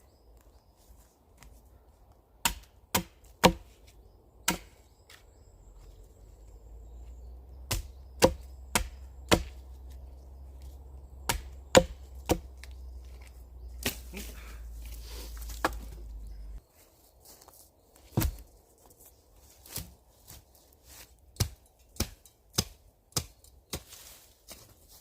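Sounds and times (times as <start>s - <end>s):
axe chopping wood: 2.4s - 3.7s, 4.4s - 4.8s, 7.6s - 9.7s, 11.2s - 12.8s, 13.8s - 14.2s, 15.5s - 16.1s, 18.1s - 18.4s, 21.4s - 24.0s.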